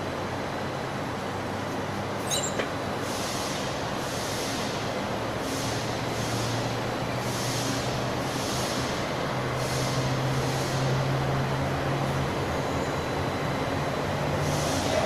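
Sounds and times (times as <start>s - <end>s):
industrial machinery hum: 0.0s - 15.0s
brief high squeak: 2.2s - 2.8s
high pulsing hiss: 2.8s - 15.0s.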